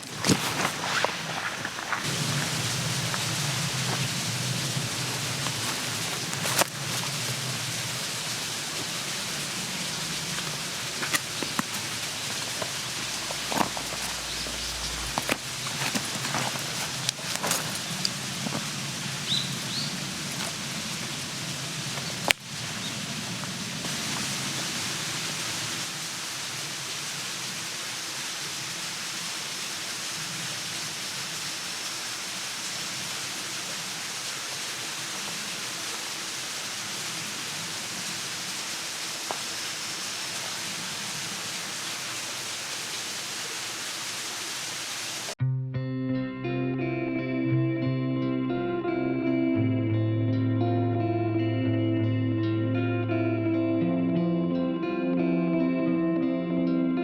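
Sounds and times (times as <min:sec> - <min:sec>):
steady outdoor hiss: 0:00.0 - 0:45.4.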